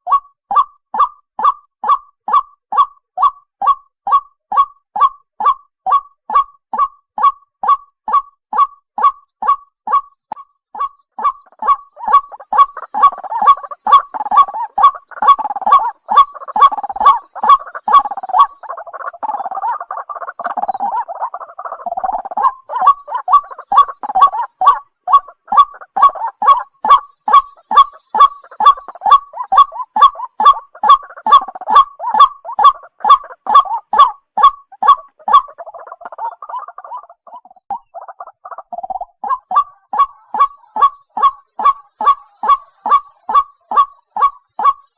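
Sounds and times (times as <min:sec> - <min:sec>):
waterhen calling: 0:00.0 - 0:44.9
chattering bird notes: 0:10.8 - 0:44.9.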